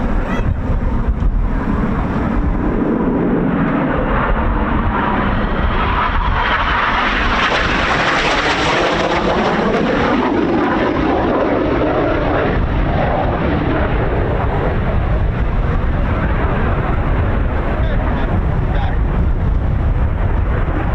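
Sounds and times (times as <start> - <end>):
jet engine roar: 0.0 - 20.9
wind buffeting the microphone: 0.0 - 20.9.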